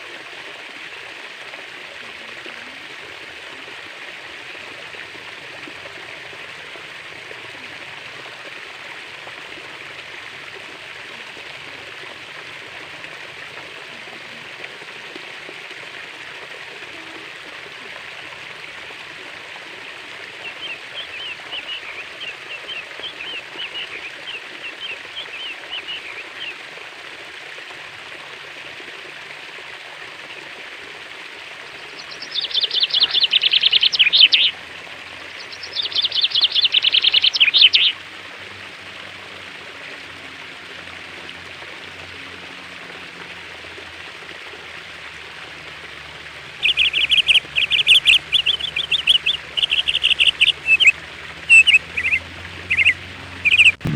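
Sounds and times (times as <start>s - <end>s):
stream flowing: 0.0s - 53.9s
bird chirping: 20.4s - 26.5s, 31.9s - 34.5s, 35.4s - 37.9s, 46.6s - 53.9s.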